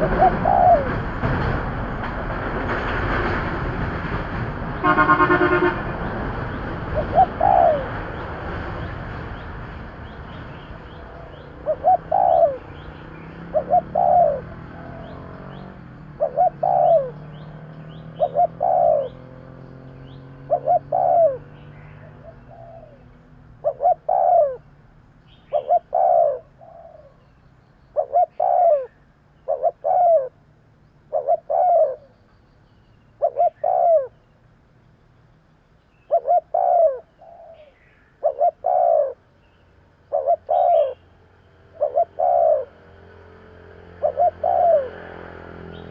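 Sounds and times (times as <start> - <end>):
dove cooing: 0.0 - 1.5, 6.5 - 9.2, 10.8 - 17.4, 18.0 - 19.3, 20.4 - 24.7, 25.5 - 27.2, 28.0 - 30.4, 31.1 - 32.1, 33.2 - 34.2, 36.1 - 39.3, 40.1 - 45.9.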